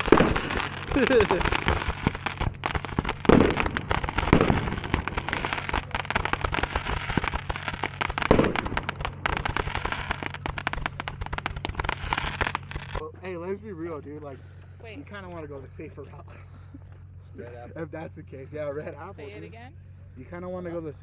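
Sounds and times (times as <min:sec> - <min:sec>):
fireworks crackling and popping: 0:00.0 - 0:13.0
loud firework bangs: 0:00.0 - 0:13.0.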